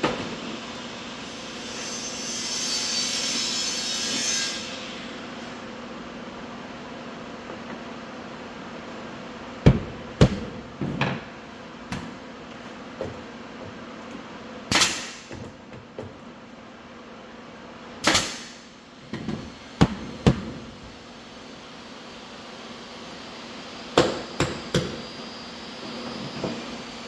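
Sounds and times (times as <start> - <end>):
hammering on hardwood floor: 9.6 - 11.2.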